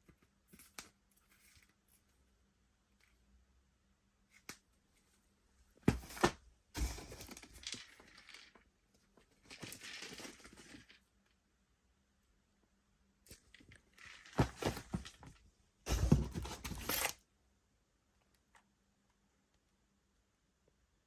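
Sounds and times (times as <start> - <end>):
rustling or scraping: 14.0 - 17.2.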